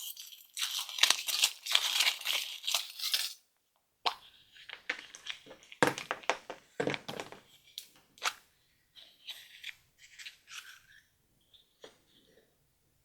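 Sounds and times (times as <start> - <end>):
packaging crinkling and tearing: 0.0 - 3.4.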